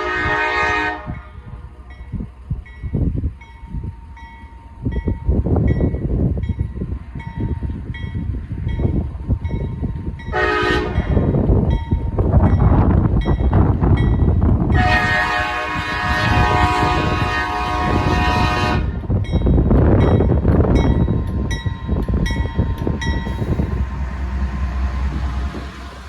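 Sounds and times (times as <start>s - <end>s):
train horn: 0.0s - 1.4s, 10.3s - 11.3s, 14.7s - 19.0s
train rumble: 0.0s - 26.0s
crossing bell dinging: 19.2s - 26.0s.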